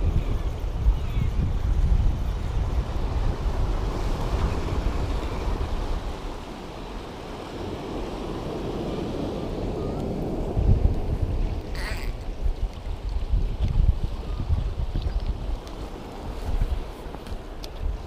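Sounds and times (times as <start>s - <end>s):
sea surf washing: 0.0s - 18.0s
wind buffeting microphone: 0.0s - 18.0s.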